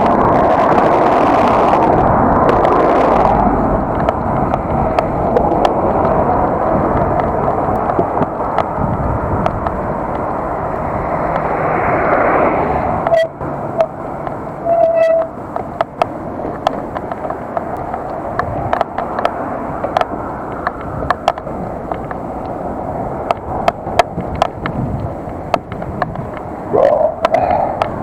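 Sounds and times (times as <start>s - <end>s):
bike clicks and rattles: 0.0s - 28.0s
vehicle passing: 0.0s - 28.0s
wind and road noise: 0.0s - 28.0s.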